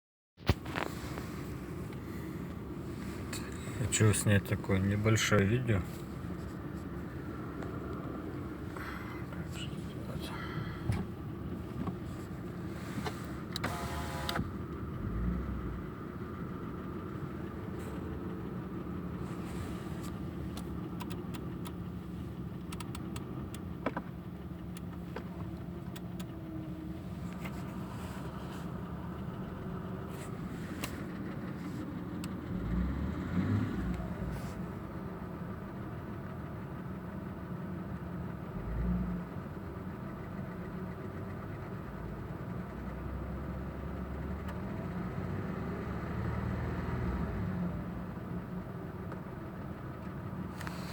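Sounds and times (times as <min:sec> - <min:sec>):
car engine idling: 0:00.4 - 0:44.9, 0:47.8 - 0:50.9
engine knocking: 0:34.7 - 0:44.9.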